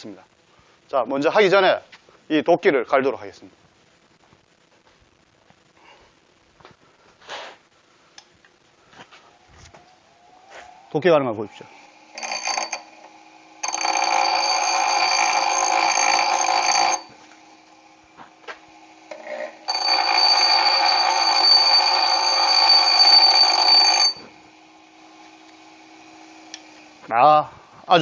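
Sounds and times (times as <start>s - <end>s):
electric grinder sharpening axe: 12.1s - 17.3s, 19.1s - 24.5s.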